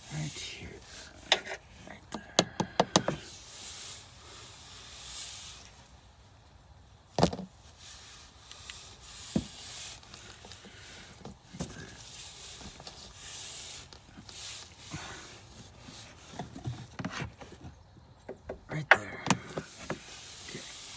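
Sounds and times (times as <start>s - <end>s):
rustling and handling: 7.1s - 20.9s.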